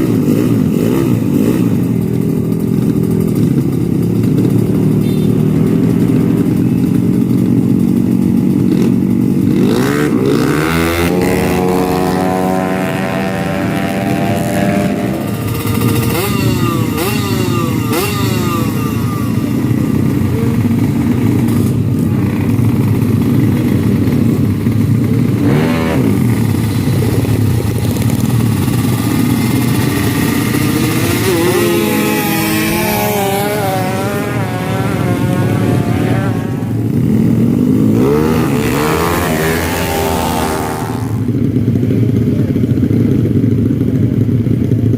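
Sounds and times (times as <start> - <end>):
motorcycle engines revving: 0.0 - 44.9
motorcycle engine whines passing: 9.5 - 41.8.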